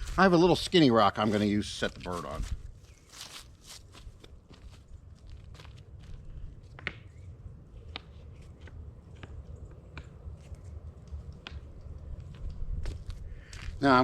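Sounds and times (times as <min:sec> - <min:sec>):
low steady rumble: 0:04.1 - 0:14.0.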